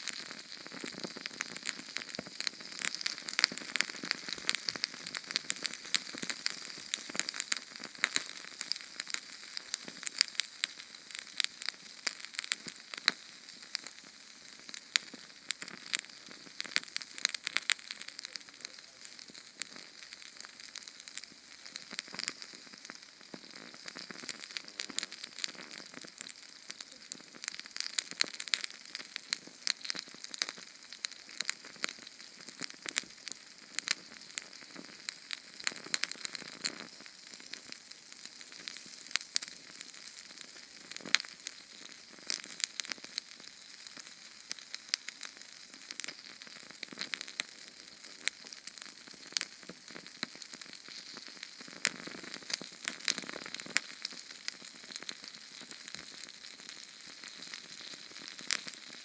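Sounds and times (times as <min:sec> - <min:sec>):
gel fuel flame hissing and crackling: 0:00.0 - 0:59.0.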